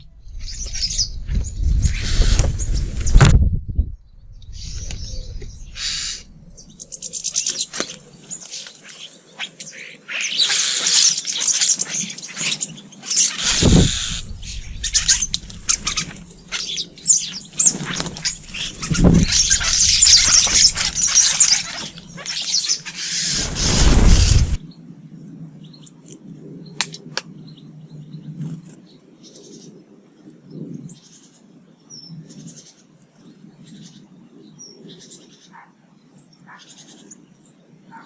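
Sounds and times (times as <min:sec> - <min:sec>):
small birds chirping: 0:00.0 - 0:03.2, 0:03.8 - 0:24.8
low thuds: 0:00.0 - 0:06.7, 0:13.4 - 0:21.2, 0:23.3 - 0:24.6.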